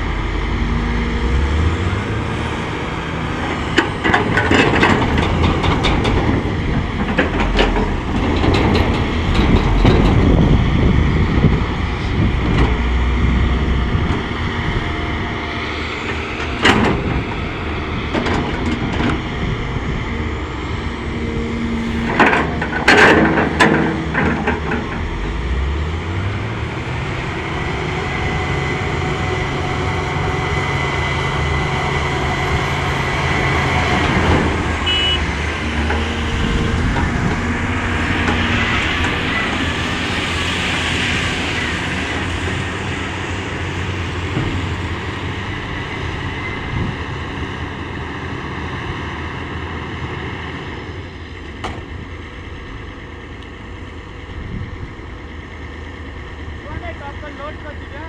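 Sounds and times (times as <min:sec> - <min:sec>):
excavator diesel engine running: 0:00.0 - 0:58.0
loud knocking clatter: 0:03.3 - 0:10.8.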